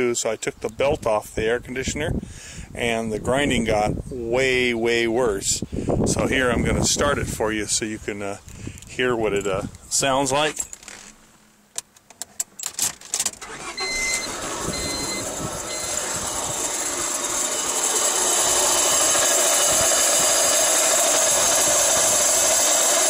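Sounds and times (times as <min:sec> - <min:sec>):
car engine cranking and starting: 0:12.0 - 0:23.0
engine grinding noise: 0:13.3 - 0:23.0
dashboard chime beeping: 0:13.7 - 0:16.0.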